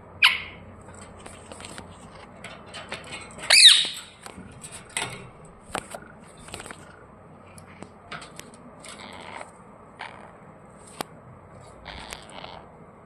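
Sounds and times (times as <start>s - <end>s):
light clicks and scratches: 0.8s - 10.2s, 10.8s - 12.6s
parrot screech: 3.5s - 4.0s, 11.8s - 12.7s.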